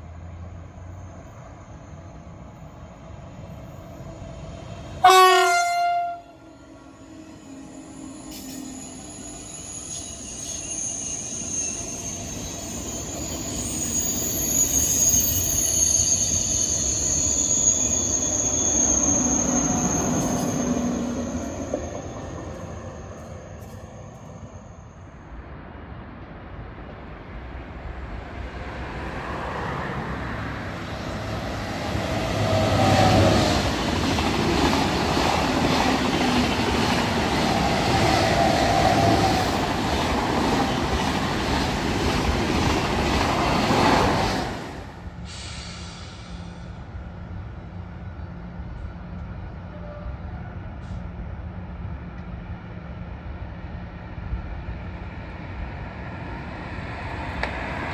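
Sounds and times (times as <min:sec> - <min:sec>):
train rolling on rails: 0:00.0 - 0:57.9
high wheel squeal: 0:06.9 - 0:25.2.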